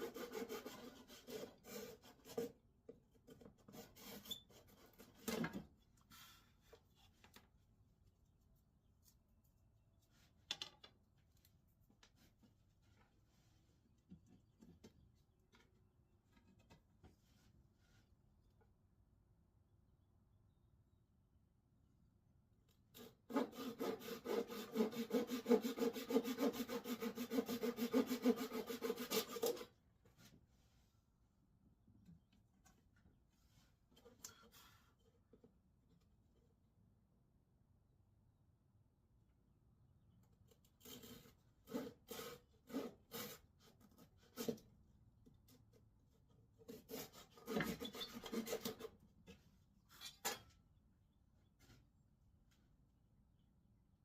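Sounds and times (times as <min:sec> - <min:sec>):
hand saw cutting wood: 0:00.0 - 0:02.6, 0:03.6 - 0:05.4, 0:23.0 - 0:29.7, 0:40.8 - 0:44.6, 0:46.7 - 0:49.0.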